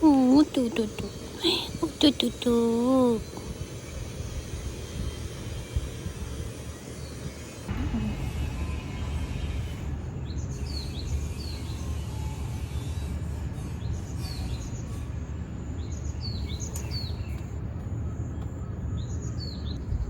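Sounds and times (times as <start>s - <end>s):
small birds chirping: 0.0s - 19.9s
low outdoor rumble: 0.0s - 20.0s.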